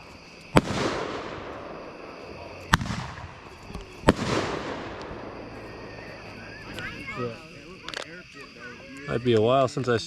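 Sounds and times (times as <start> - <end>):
fireworks bangs with echo: 0.0 - 6.2.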